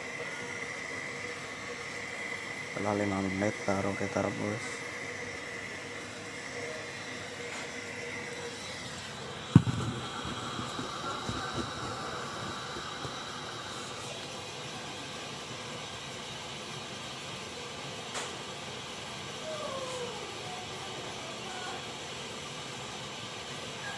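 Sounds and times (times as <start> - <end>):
steady hiss: 0.0 - 19.3
sharp knock: 9.6 - 13.2.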